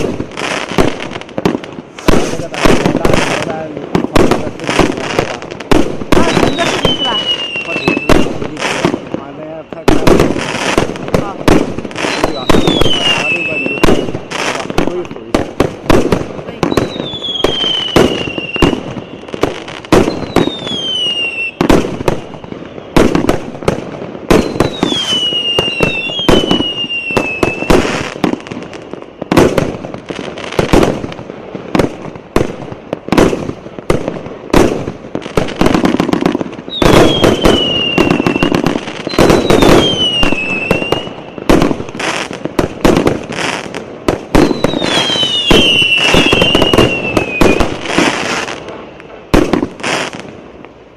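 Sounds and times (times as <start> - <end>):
firework bursts and bangs: 0.0 - 50.9
falling firework whistles: 6.1 - 8.9, 12.0 - 14.5, 16.6 - 23.3, 24.3 - 29.6, 35.6 - 42.3, 44.3 - 48.6.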